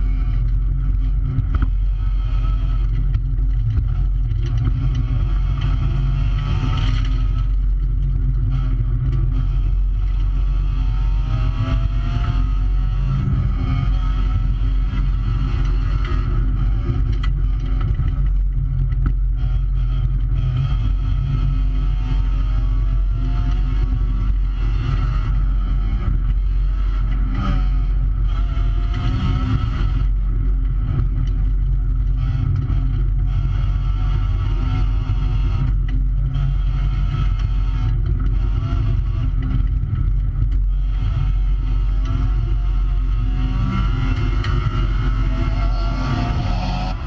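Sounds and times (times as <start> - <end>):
rally car engine revving: 0.0 - 47.0
road noise: 0.0 - 47.0.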